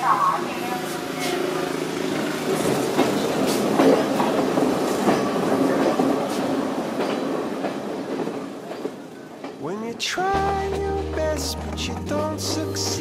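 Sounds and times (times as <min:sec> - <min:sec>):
train wheels clattering over rail joints: 0:02.2 - 0:09.9.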